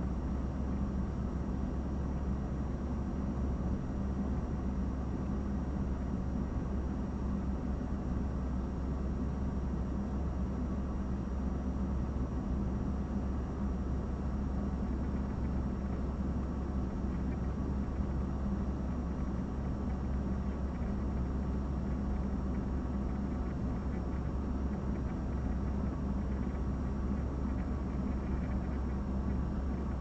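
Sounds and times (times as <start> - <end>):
low rumbling hum: 0.0 - 30.0.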